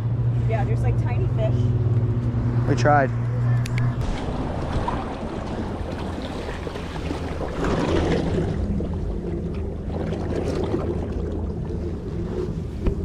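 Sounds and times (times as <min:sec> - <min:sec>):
wind buffeting microphone: 0:00.5 - 0:13.0
sea waves washing ashore: 0:03.8 - 0:13.0.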